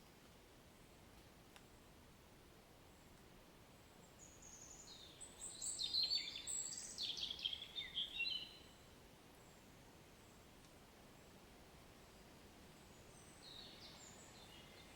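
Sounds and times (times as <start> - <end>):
songbird singing: 3.8 - 10.5, 12.8 - 14.9.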